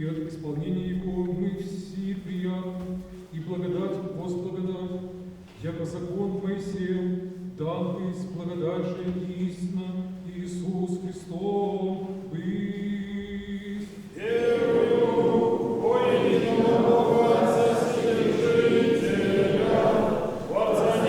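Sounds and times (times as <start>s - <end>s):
priest chanting: 10.3s - 21.0s
church choir singing: 12.0s - 21.0s.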